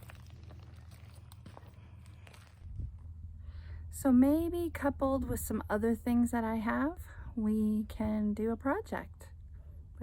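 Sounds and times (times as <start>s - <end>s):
footsteps on dry ground: 0.0s - 2.8s.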